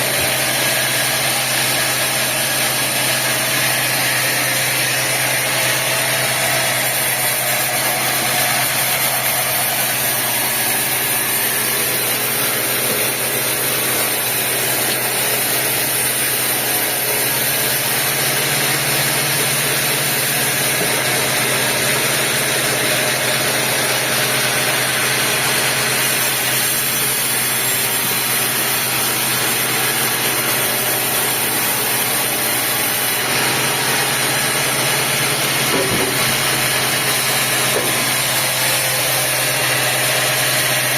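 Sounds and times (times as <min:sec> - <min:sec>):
sawmill machinery humming: 0:00.0 - 0:40.9.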